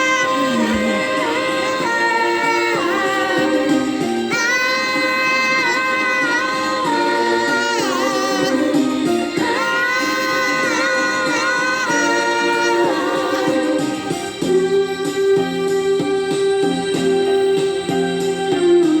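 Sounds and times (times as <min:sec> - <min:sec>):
person singing long notes: 0:00.0 - 0:14.6
backing music: 0:00.0 - 0:19.0.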